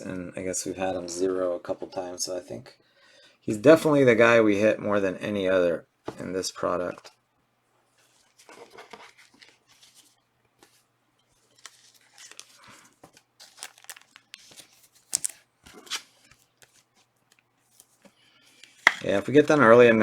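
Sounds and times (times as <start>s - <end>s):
card pack wrappers tearing and crinkling: 11.6s - 16.9s.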